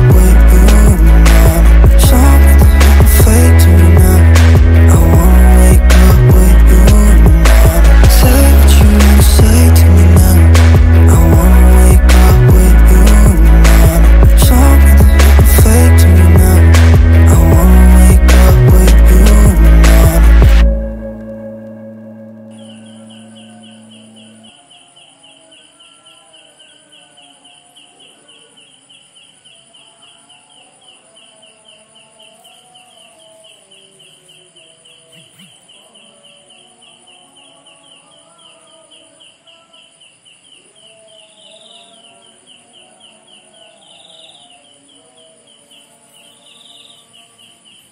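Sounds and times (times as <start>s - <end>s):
high insect drone: 22.3s - 47.9s
insect chirping: 22.3s - 47.9s
faint wavering animal calls: 22.4s - 47.9s.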